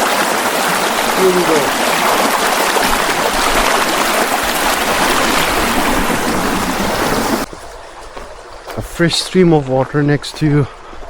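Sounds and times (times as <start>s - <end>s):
stream rushing: 0.0s - 11.0s.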